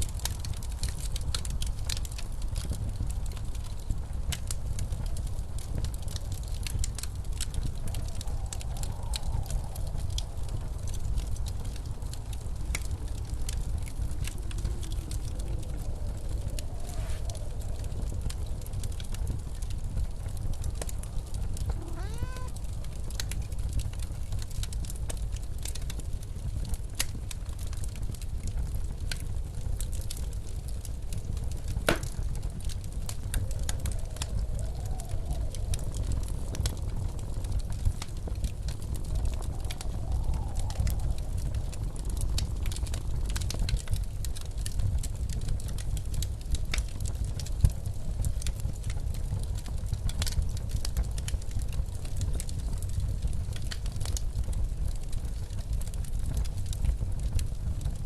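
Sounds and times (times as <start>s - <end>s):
blizzard wind rumble: 0.0s - 58.0s
fireplace crackling: 0.1s - 58.0s
blizzard wind rushing: 6.3s - 23.6s, 32.2s - 43.3s.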